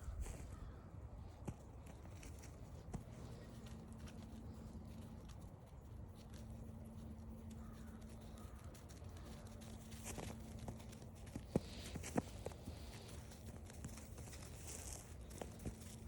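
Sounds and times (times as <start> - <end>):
crunching steps: 0.0 - 16.0
faint low hum: 0.0 - 16.0
footsteps on forest trail: 7.6 - 16.0.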